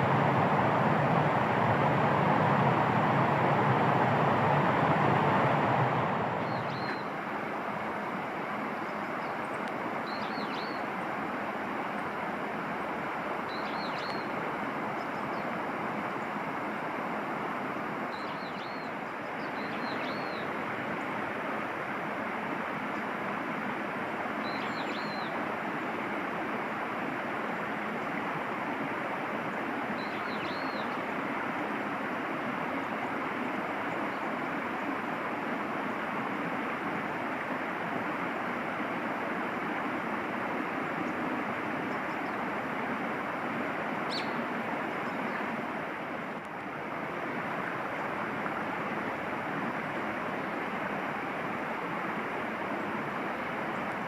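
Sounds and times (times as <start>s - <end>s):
steady rushing outdoor noise: 0.0s - 54.0s
small bird high calls: 44.1s - 44.4s.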